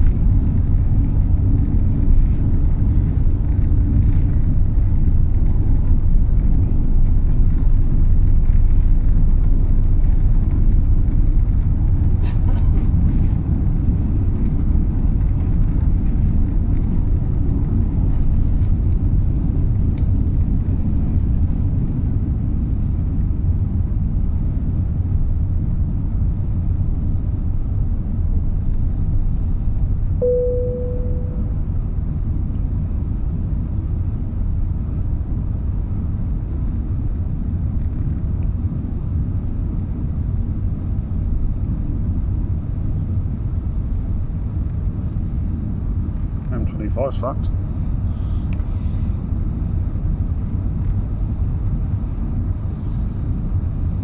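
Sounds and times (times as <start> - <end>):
ringing tone: 30.2 - 31.7.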